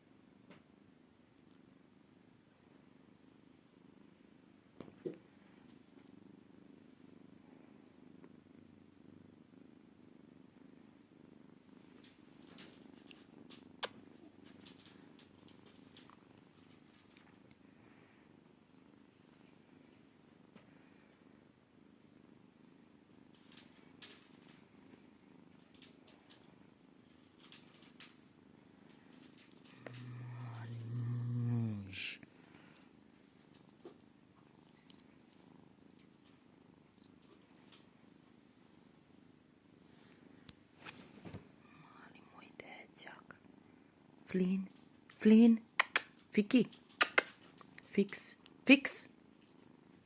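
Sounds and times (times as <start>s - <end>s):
kitten purring: 0.0s - 50.0s
small clicks: 45.8s - 47.9s.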